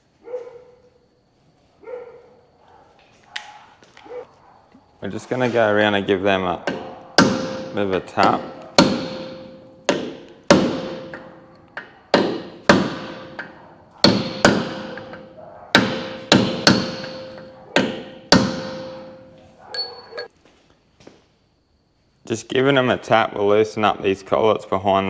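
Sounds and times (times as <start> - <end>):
hammer tapping steel nuts: 5.6 - 20.3.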